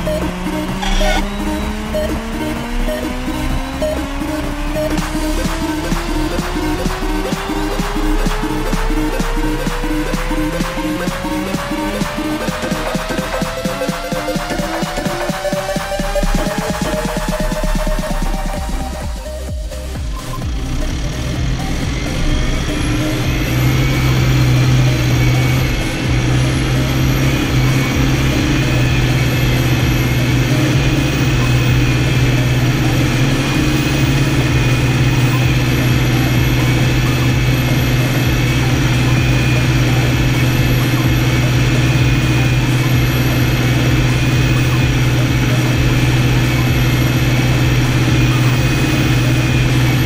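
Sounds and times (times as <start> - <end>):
tractor engine running: 0.0 - 50.0
faint high whine: 0.7 - 1.7.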